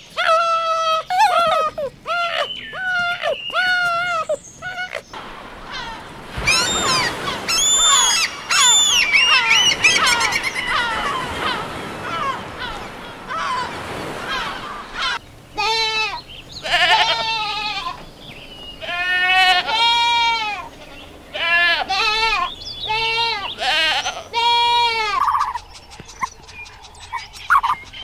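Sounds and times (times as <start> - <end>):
gulls calling: 0.0 - 28.0
goats bleating: 14.3 - 18.0, 18.8 - 25.3.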